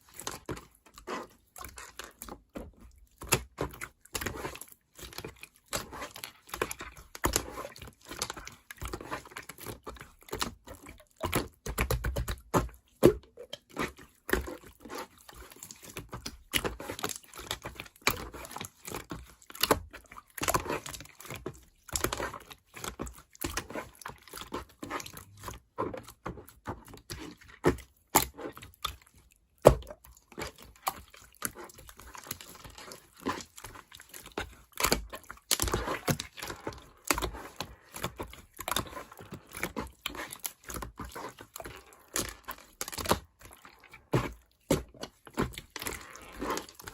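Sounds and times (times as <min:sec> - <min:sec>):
slime popping: 0:34.4 - 0:46.9.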